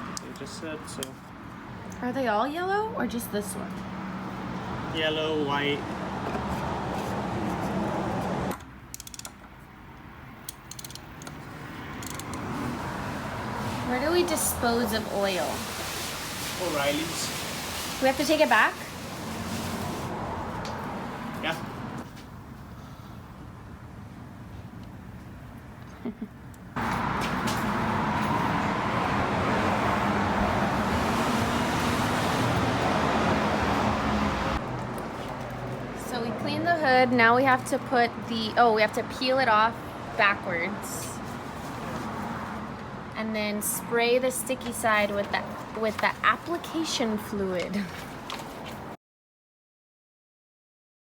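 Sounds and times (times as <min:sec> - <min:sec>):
road noise: 0:00.0 - 0:49.0
ratchet wrench clicking: 0:08.9 - 0:09.4, 0:10.4 - 0:11.4, 0:12.0 - 0:12.4.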